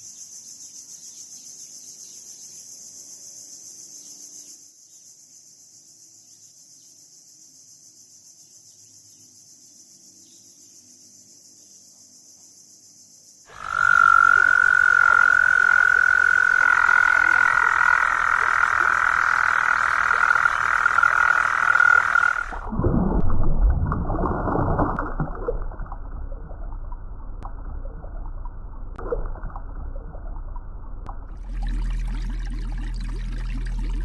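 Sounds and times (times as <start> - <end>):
frog trilling: 13.5 - 22.7.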